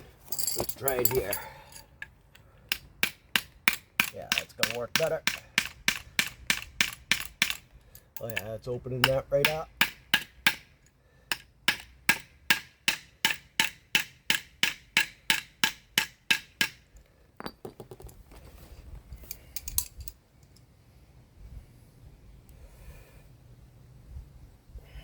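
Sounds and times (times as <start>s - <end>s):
light metal clinks: 0.3s - 2.4s, 19.1s - 20.7s
hammer striking wood block: 9.0s - 10.7s, 11.3s - 16.8s.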